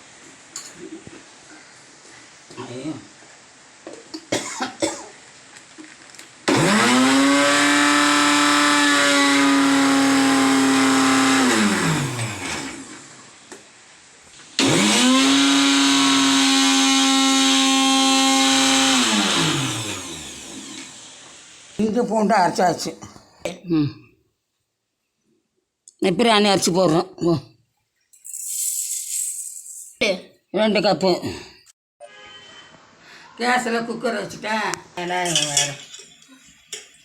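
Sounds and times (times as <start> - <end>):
mixer grinder motor whirring: 6.5 - 13.2, 14.6 - 21.8.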